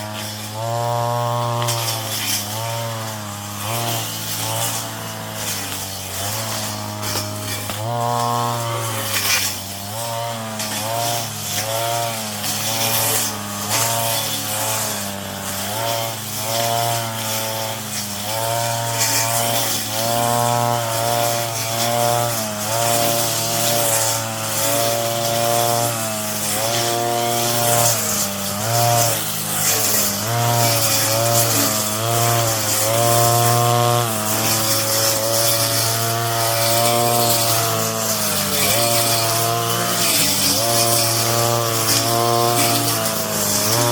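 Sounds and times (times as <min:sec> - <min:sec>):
brush cutter engine running: 0:00.0 - 0:43.9.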